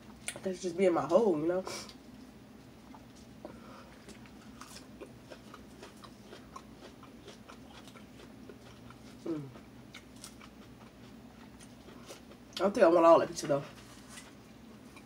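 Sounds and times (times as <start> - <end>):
chewing with mouth clicks: 2.8 - 12.6.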